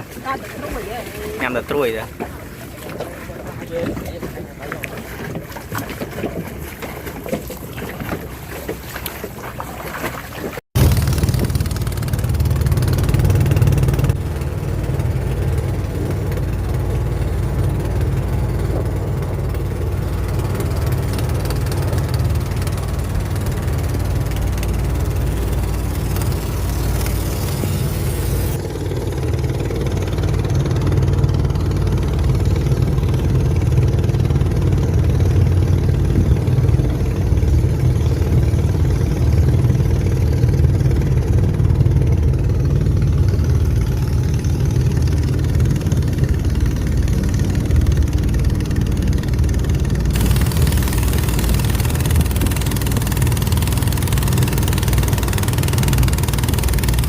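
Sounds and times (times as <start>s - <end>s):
boat engine rumbling: 0.0s - 57.0s.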